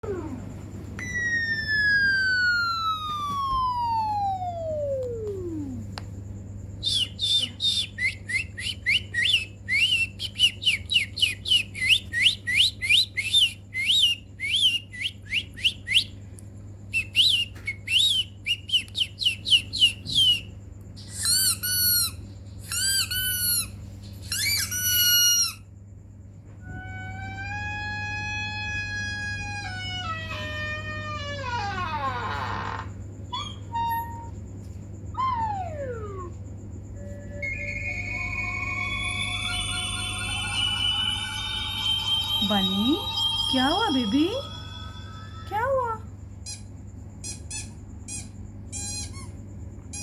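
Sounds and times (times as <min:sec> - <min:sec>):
steady low hum: 0:00.0 - 0:21.1, 0:34.4 - 0:50.0
warbling squeaky calls: 0:01.0 - 0:05.8, 0:19.3 - 0:25.6, 0:37.0 - 0:45.6
whistle sliding down in pitch: 0:01.0 - 0:05.8, 0:37.0 - 0:45.3
bird-like chirps: 0:06.8 - 0:16.1.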